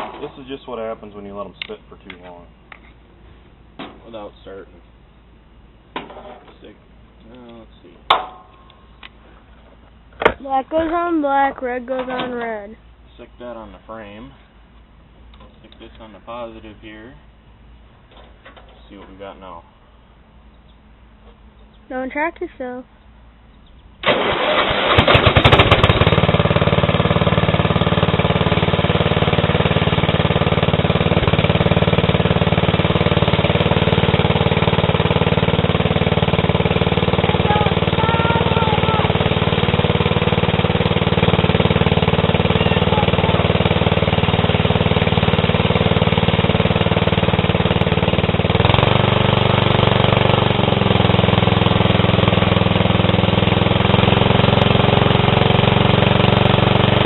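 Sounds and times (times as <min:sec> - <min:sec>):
engine cranking and starting: 0:24.0 - 0:26.8.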